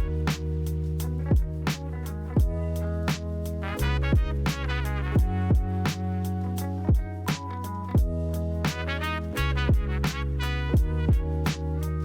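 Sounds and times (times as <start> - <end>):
plucked guitar-like instruments: 1.0 - 8.5
drum beat: 1.3 - 3.3, 4.1 - 6.1, 6.9 - 11.6.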